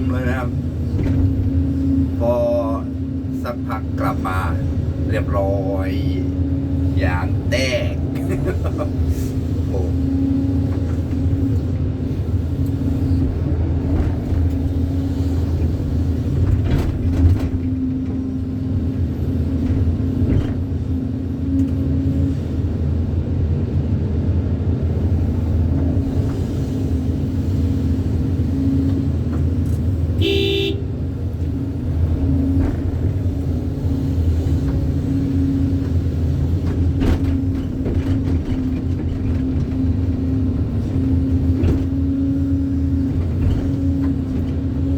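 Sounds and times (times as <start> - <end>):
excavator diesel engine running: 0.0 - 44.9
short horn toot: 30.2 - 30.9.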